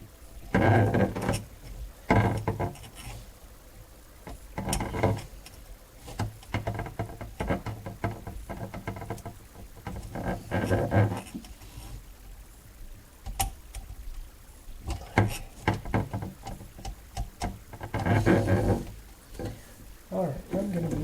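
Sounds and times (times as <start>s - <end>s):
plumbing clattering and knocks: 0.5s - 2.9s, 4.2s - 5.3s, 6.1s - 11.4s, 14.8s - 19.7s.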